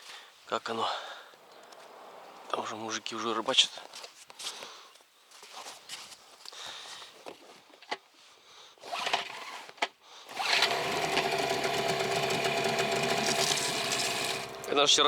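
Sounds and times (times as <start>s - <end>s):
outboard motor running: 10.4s - 15.0s.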